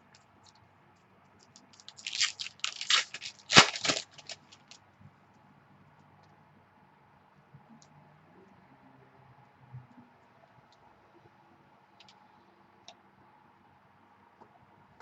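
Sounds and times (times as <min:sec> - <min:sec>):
card pack wrapper crinkling and tearing: 0:01.8 - 0:04.8.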